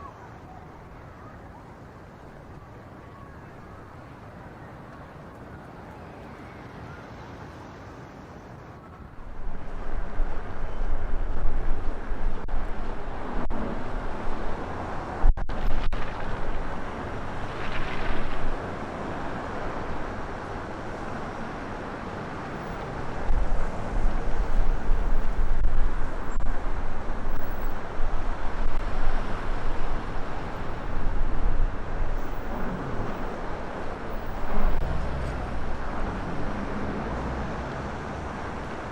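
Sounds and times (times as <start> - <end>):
strong wind buffeting microphone: 9.1 - 38.9.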